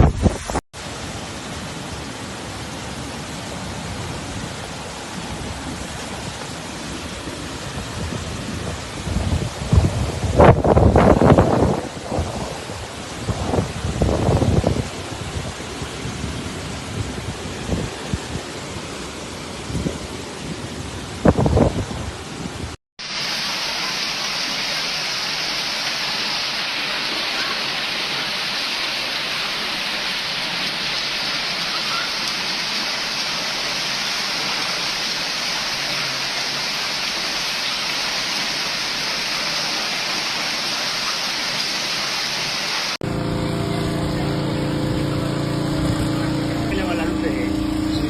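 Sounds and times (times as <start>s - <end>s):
heavy rain pouring: 0.0s - 48.0s
loud rumble: 43.0s - 48.0s
low engine hum: 43.0s - 48.0s.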